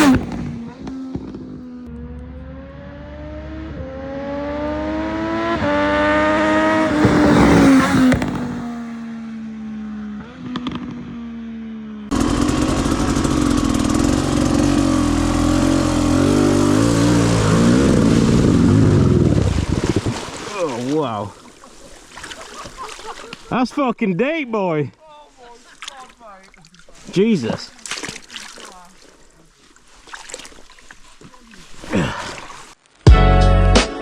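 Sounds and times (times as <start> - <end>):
motorcycle engine accelerating: 0.0 - 20.8
wind noise on microphone: 18.2 - 20.4.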